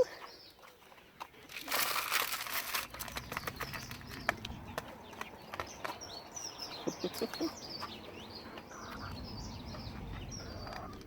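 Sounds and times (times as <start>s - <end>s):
birds chirping: 0.0s - 11.0s
hen clucking: 6.8s - 11.0s.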